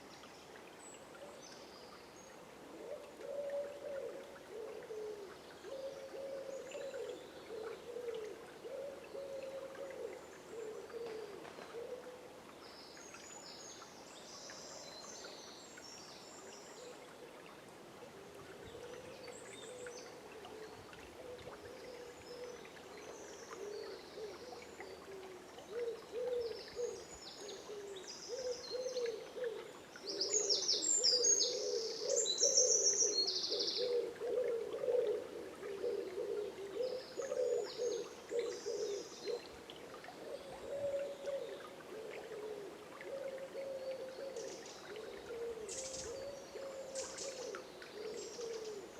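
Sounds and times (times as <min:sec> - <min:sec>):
high songbird song: 0:21.5 - 0:34.5, 0:35.8 - 0:39.6, 0:43.6 - 0:48.9
bird hooting calls: 0:25.1 - 0:27.0, 0:30.2 - 0:39.4, 0:40.3 - 0:48.9.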